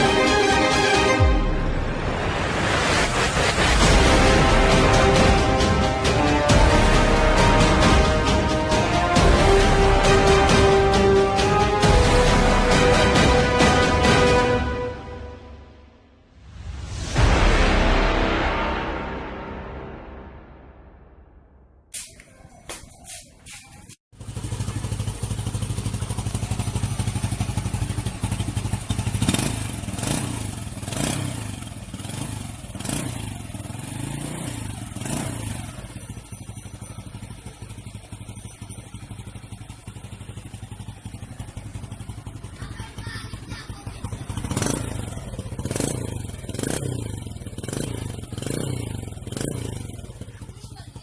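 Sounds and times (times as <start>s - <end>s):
motorcycle engine idling: 22.6s - 51.0s
motorcycle throttle revs: 23.1s - 51.0s.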